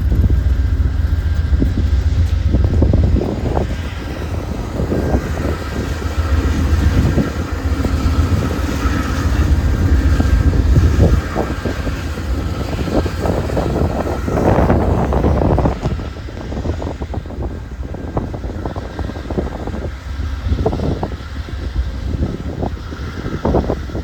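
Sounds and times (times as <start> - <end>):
train rumbling: 0.0 - 24.0
wind gusting on microphone: 0.0 - 24.0.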